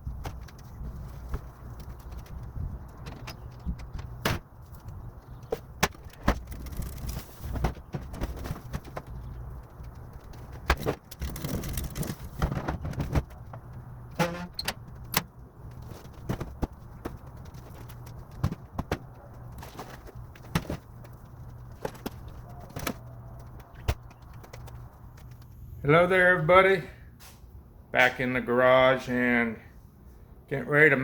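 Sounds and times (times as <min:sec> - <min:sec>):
clunks and clatter of trash: 0:00.1 - 0:24.9
short squeak or scrape: 0:14.2 - 0:14.7.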